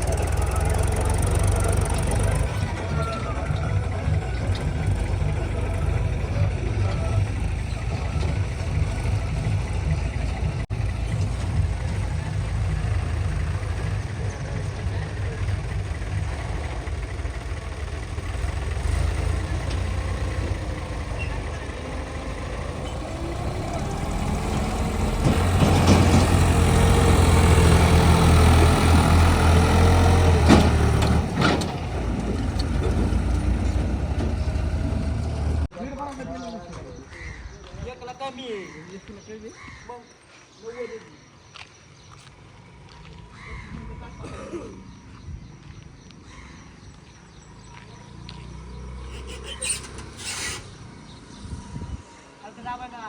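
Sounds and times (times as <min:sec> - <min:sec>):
tractor engine throbbing: 0:00.0 - 0:35.7.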